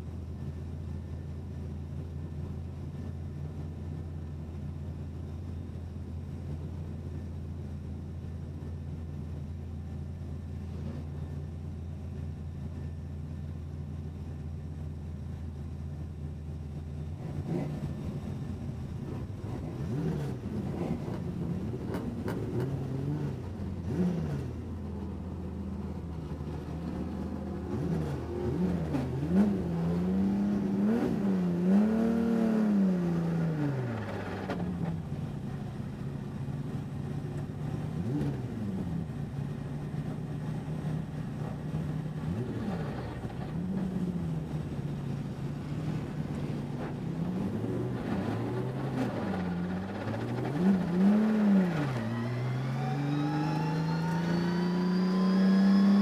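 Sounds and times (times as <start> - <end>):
race car engine revving: 25.8 - 35.0, 40.8 - 56.0.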